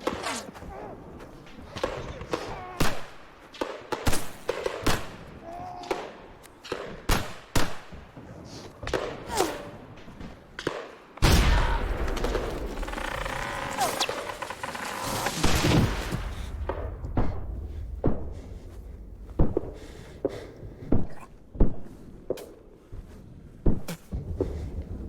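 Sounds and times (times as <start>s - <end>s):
voice-like cries: 5.4s - 6.1s
gunshots: 8.8s - 22.6s
heavy rumble: 11.2s - 20.8s.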